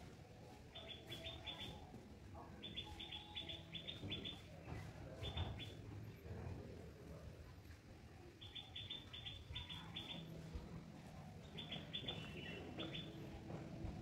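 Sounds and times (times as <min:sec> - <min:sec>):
birds chirping: 0:02.6 - 0:04.5, 0:08.4 - 0:10.4, 0:11.4 - 0:13.4.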